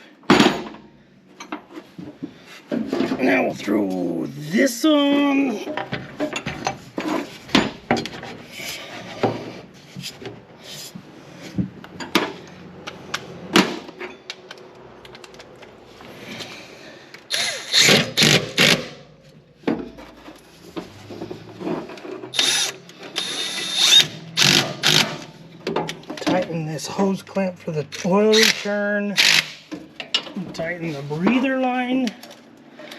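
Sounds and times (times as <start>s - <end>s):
hand tools clicking and clanking: 5.2s - 32.9s
rapid tool clicking: 22.3s - 25.3s, 28.0s - 29.6s.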